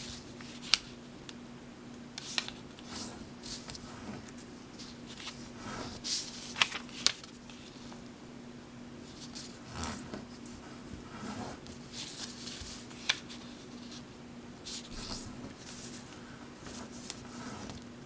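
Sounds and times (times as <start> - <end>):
paper crease snap: 2.2 - 3.8, 6.4 - 7.6
paper rustling: 2.2 - 8.0, 9.0 - 17.9.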